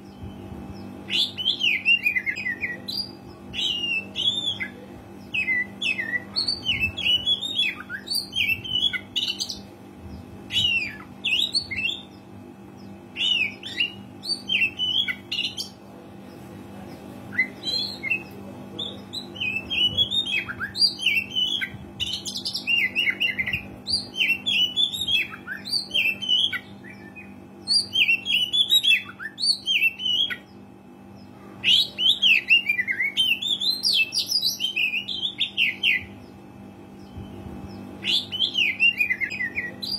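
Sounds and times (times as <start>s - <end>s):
faint steady hum: 0.0s - 39.9s
bird singing whistles and chirps: 37.0s - 39.9s.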